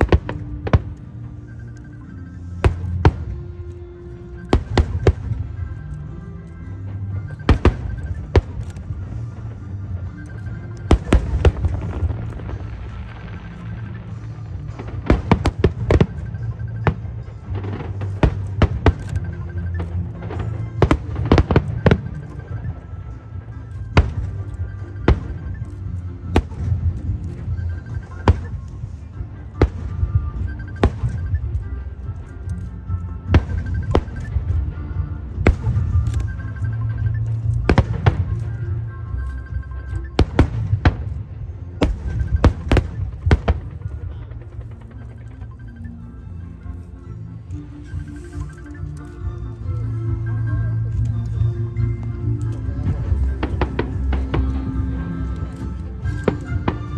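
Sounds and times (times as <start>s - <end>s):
show music: 0.0s - 56.9s
fireworks bangs: 10.8s - 22.8s, 40.2s - 44.8s, 52.8s - 56.9s.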